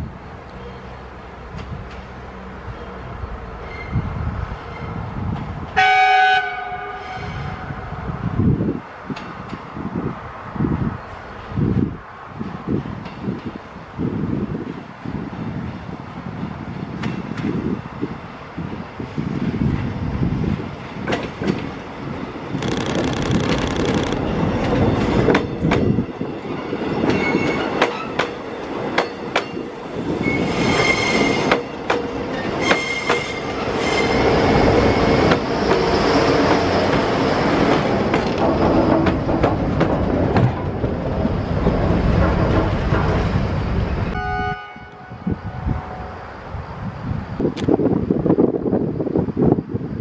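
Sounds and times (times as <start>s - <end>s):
high wheel squeals: 3.6s - 5.0s, 30.0s - 31.7s, 32.4s - 37.4s
wheels clicking over rail joints: 22.5s - 25.9s, 36.4s - 43.7s.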